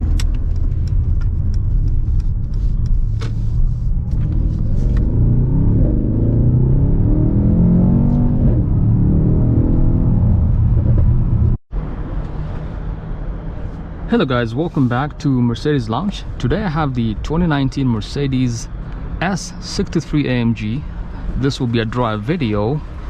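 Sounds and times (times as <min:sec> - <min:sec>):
car engine exhaust revving: 0:03.3 - 0:11.6.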